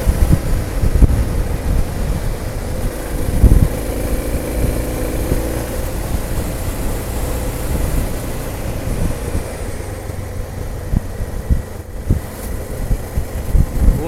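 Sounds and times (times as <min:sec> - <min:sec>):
motorcycle engine running: 0:00.0 - 0:14.0
short low thumps: 0:02.8 - 0:06.3.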